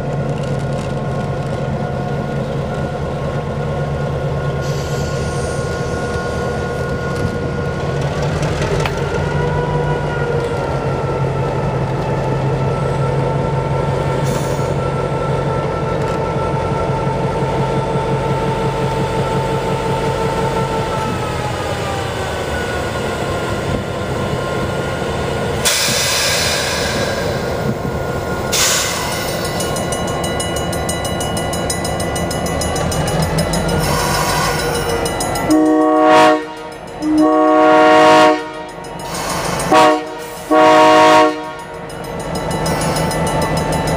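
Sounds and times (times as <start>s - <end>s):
diesel locomotive drone: 0.0s - 43.9s
train wheels squealing: 4.5s - 9.5s, 25.6s - 27.7s, 28.4s - 35.5s, 38.8s - 40.5s, 42.0s - 43.9s.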